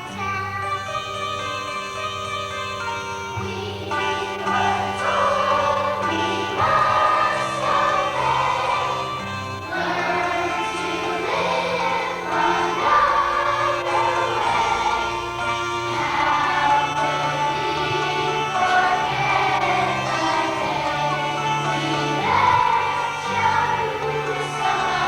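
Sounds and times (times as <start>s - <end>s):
instrumental accompaniment: 0.0s - 25.0s
choir singing: 3.2s - 25.0s.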